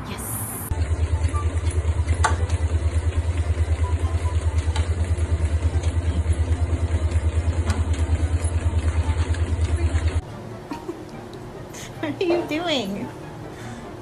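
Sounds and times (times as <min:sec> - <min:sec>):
engine idling: 0:00.7 - 0:10.2.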